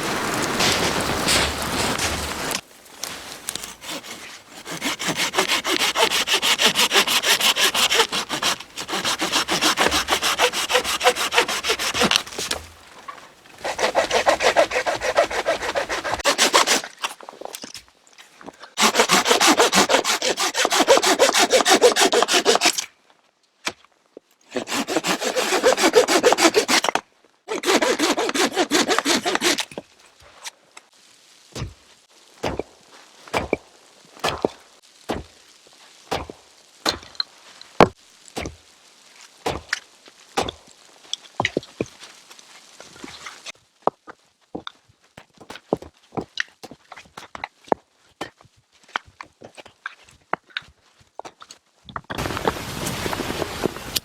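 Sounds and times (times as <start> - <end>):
hand saw cutting wood: 3.5 - 12.8, 13.6 - 17.2, 18.8 - 22.9, 24.5 - 29.8.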